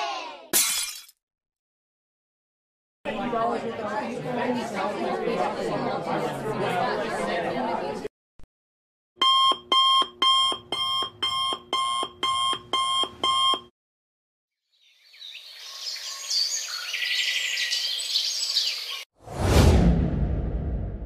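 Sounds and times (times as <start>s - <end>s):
alarm clock beeping: 9.2s - 13.7s
birds chirping: 14.8s - 19.0s.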